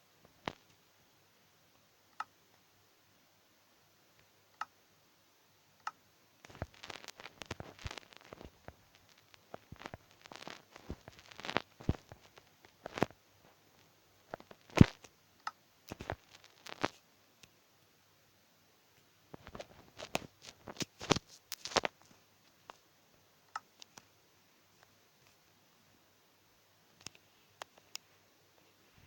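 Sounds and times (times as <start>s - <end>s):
rustling: 6.4s - 15.1s, 15.9s - 17.0s, 19.3s - 22.9s.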